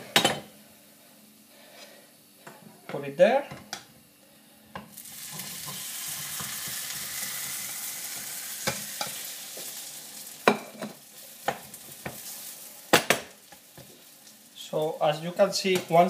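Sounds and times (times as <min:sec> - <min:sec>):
omelette sizzling in frying pan: 0:04.8 - 0:16.0.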